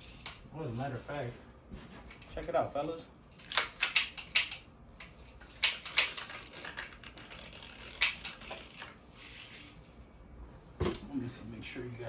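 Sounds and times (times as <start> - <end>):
pistols clicking and clacking: 3.4 - 4.7, 5.6 - 6.8.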